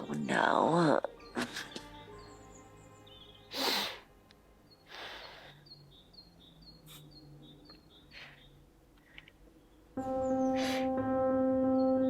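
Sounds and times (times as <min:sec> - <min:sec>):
small high chirps: 0:04.7 - 0:09.4
breathy bursts: 0:04.8 - 0:05.6.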